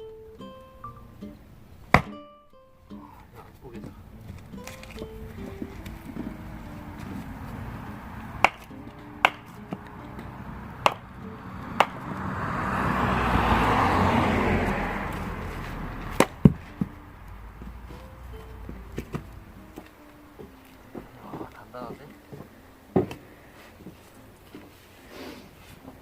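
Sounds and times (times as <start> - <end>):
axe striking firewood: 1.9 - 2.2, 8.2 - 10.2, 10.8 - 11.1, 11.7 - 12.2, 16.1 - 17.0, 22.4 - 23.2.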